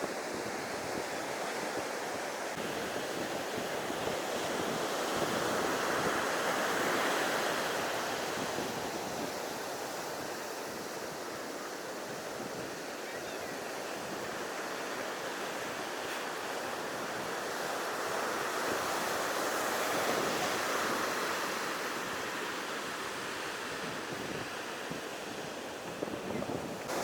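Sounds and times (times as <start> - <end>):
ocean waves washing onto beach: 0.0 - 27.0.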